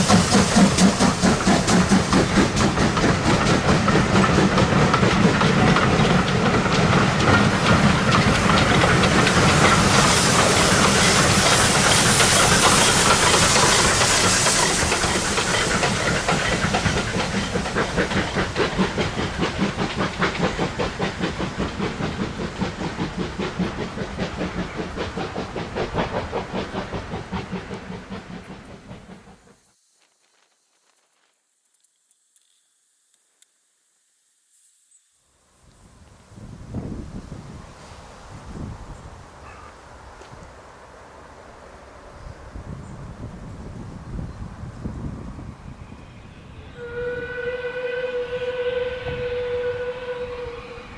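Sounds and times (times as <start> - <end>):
steam train rhythmic beat: 0.0 - 29.6
steam train hissing: 0.0 - 30.6, 33.8 - 50.9.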